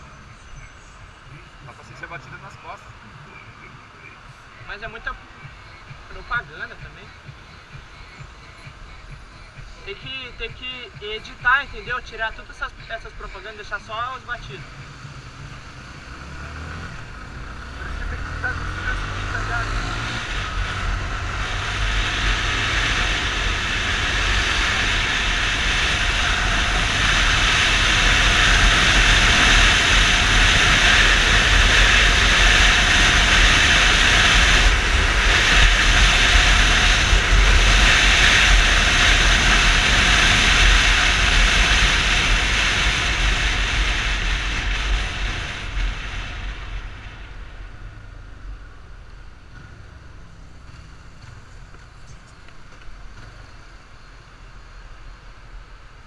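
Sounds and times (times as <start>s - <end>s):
wind rushing over microphone: 4.6s - 49.1s.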